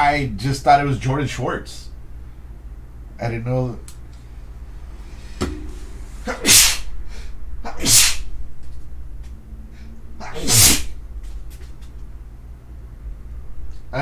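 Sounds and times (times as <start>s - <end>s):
man sneezing: 6.3s - 6.9s, 7.7s - 8.2s, 10.2s - 11.0s.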